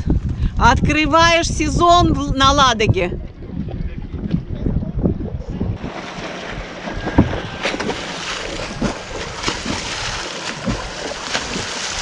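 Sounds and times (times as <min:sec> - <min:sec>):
wind buffeting microphone: 0:00.0 - 0:12.0
water splashing and sloshing: 0:05.8 - 0:12.0.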